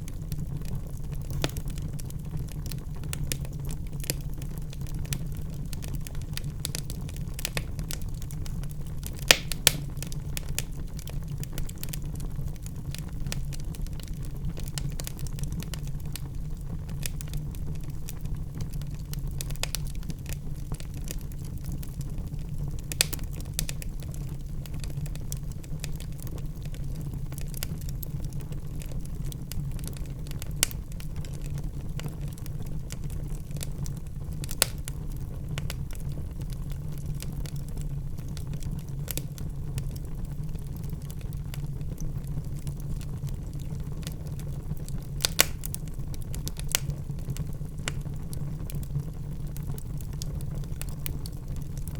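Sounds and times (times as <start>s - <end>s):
wood fire crackling: 0.0s - 51.9s.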